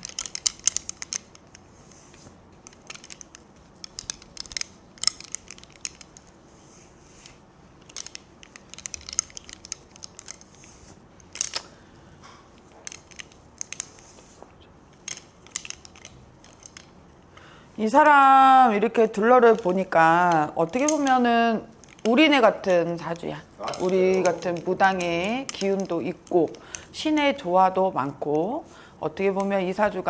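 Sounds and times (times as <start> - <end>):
crisp rustles of handled objects: 0.0 - 30.0
small clicks and snips: 7.1 - 17.5.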